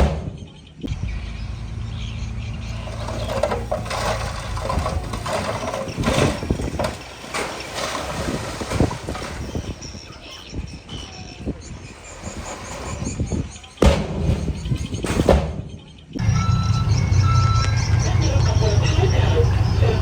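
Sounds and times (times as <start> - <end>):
knocks and clanks: 0.0 - 0.5, 2.6 - 10.0, 11.9 - 20.0
diesel engine running: 0.9 - 10.0, 16.2 - 20.0.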